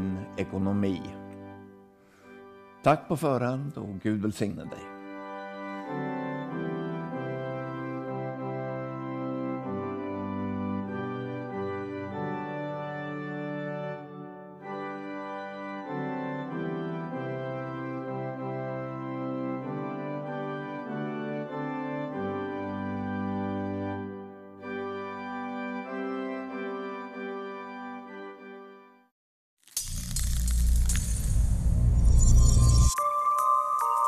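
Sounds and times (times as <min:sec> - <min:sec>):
organ chords: 0:04.7 - 0:28.8.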